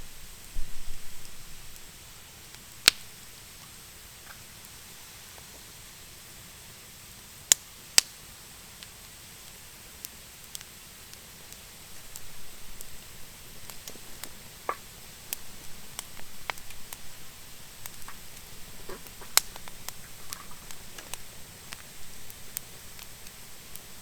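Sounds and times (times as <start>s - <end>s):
campfire crackling and popping: 0.0s - 24.0s
soft flutter of burning: 0.0s - 24.0s.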